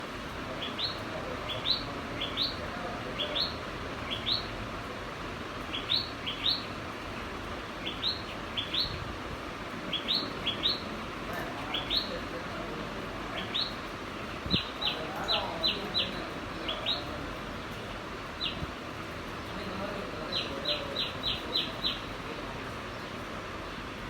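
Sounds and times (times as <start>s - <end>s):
sparrow chirping: 0.5s - 4.6s, 5.6s - 9.0s, 9.9s - 12.6s, 13.2s - 22.2s.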